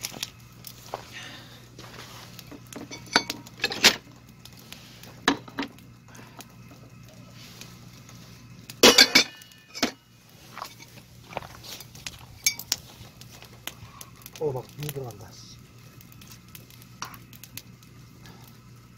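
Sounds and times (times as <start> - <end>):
utensils clinking against dishes: 2.8 - 4.0, 8.8 - 10.0.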